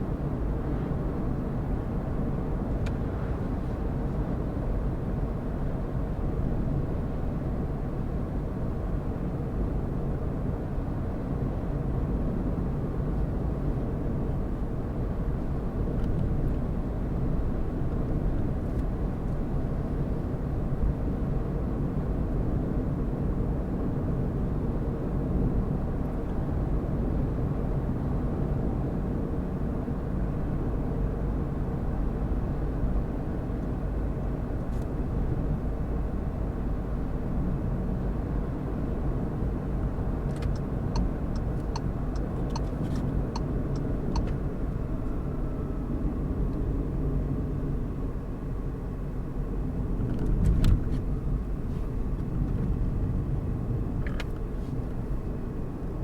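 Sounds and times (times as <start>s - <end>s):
car engine and tyre noise: 0.0s - 56.0s
light ticks: 40.3s - 44.4s.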